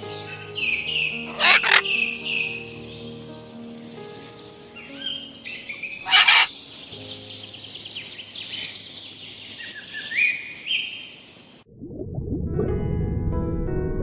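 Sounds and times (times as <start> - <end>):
birds chirping and calling: 1.2 - 2.0, 5.6 - 6.8
harsh bird call burst: 1.3 - 1.8, 6.1 - 6.5.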